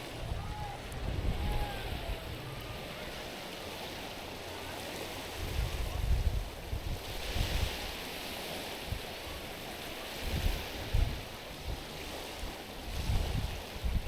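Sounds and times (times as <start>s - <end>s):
wind buffeting microphone: 0.0s - 9.4s, 10.1s - 14.0s
small waves lapping on stony shore: 0.0s - 14.0s.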